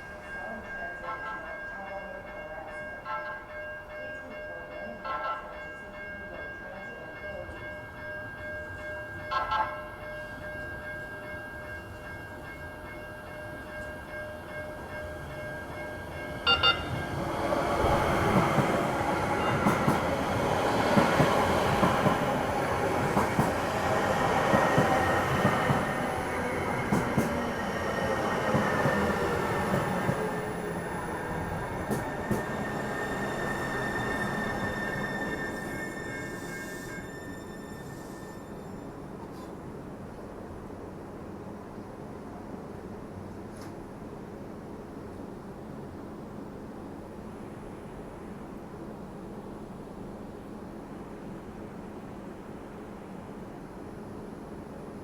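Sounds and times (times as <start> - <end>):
train wheels rumbling on rails: 10.3 - 38.4.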